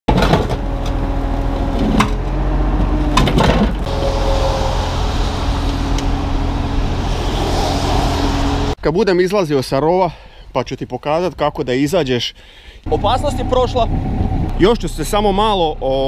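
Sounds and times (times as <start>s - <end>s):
excavator diesel engine running: 0.1s - 8.8s.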